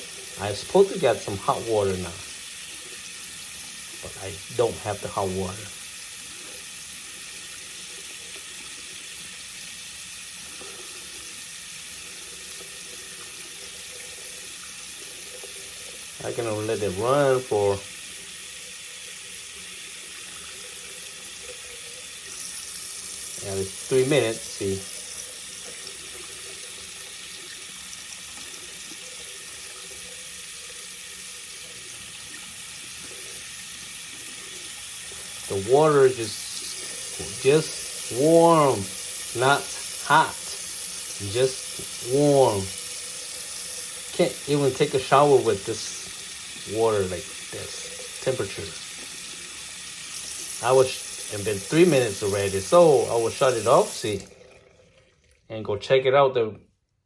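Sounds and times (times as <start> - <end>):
faucet water running: 0.0 - 56.0.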